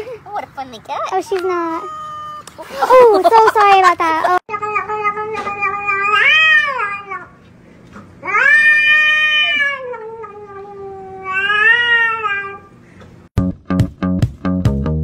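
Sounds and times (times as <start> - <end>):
cat yowling: 1.7 - 2.5, 4.6 - 7.3, 8.2 - 12.7.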